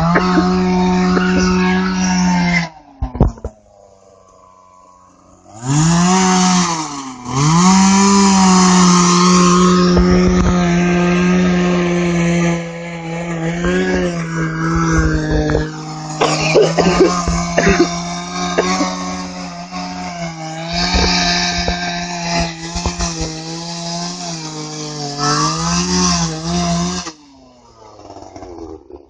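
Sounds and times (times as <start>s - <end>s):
chainsaw revving and idling: 0.0s - 29.0s.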